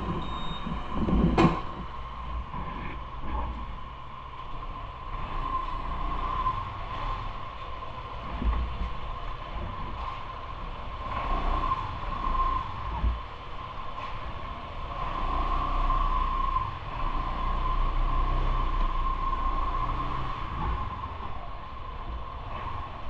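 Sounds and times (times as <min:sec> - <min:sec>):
bicycle riding rumble: 0:00.0 - 0:23.0
thin steady whine: 0:00.0 - 0:23.0.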